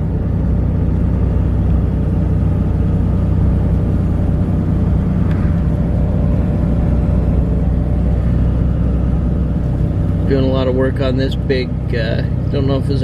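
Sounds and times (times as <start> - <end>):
car interior road rumble: 0.0 - 13.0.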